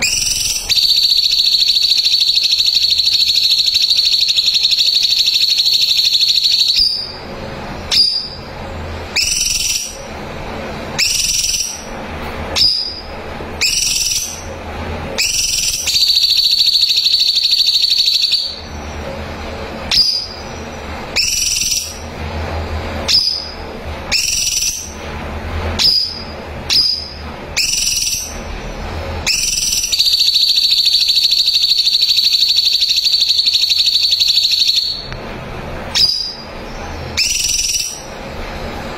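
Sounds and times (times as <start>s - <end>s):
bird upward-sweeping whistles: 0.0s - 7.2s, 7.9s - 8.5s, 9.1s - 10.1s, 11.0s - 11.9s, 12.6s - 14.5s, 15.2s - 18.8s, 19.9s - 22.1s, 23.1s - 25.0s, 25.8s - 28.4s, 29.2s - 35.1s, 35.9s - 36.5s, 37.2s - 38.1s.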